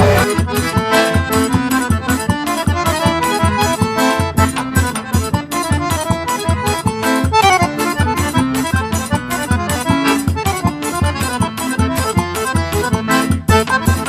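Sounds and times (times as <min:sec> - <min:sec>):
steady driving beat: 0:00.0 - 0:00.6
accordion-led instrumental music: 0:00.0 - 0:14.0.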